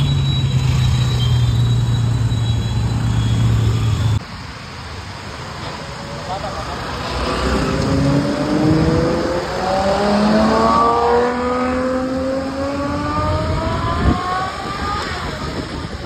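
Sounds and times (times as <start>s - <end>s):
car engine accelerating: 6.5s - 16.0s.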